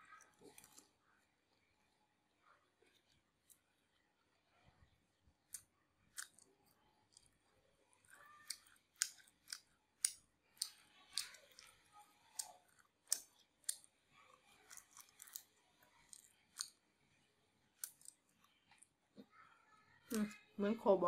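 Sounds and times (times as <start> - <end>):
crisp crunchy chewing: 0.0 - 1.6, 2.5 - 4.0, 5.4 - 18.9.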